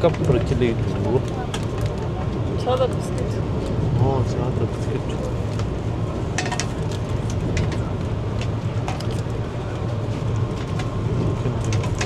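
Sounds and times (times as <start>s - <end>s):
train rumbling inside coach: 0.0s - 12.0s.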